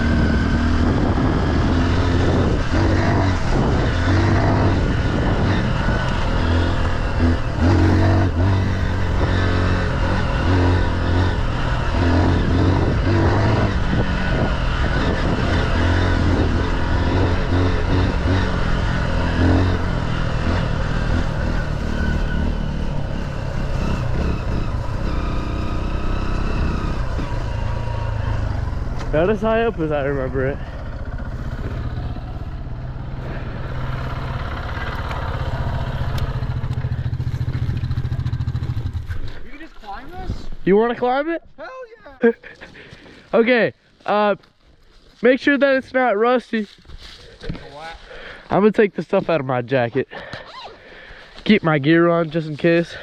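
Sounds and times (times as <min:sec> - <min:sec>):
single-cylinder engine running: 0:00.0 - 0:39.1.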